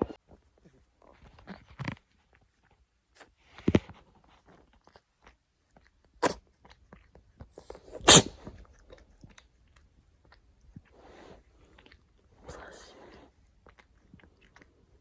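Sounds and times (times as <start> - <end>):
cat sneezing: 6.2 - 6.4, 7.8 - 8.6.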